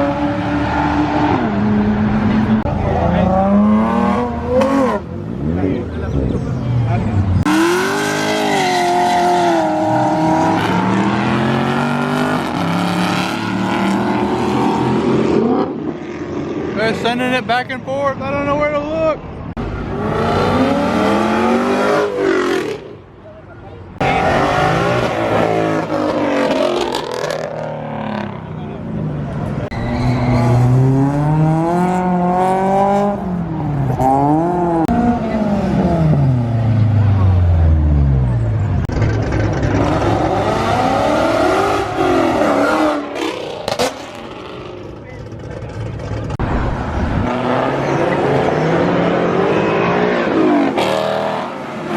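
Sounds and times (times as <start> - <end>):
car engine revving: 0.0 - 17.1, 19.6 - 23.0, 24.0 - 28.7, 30.3 - 51.9
car engine revving hard: 7.4 - 15.8, 19.8 - 22.8, 39.0 - 44.8, 47.2 - 51.9.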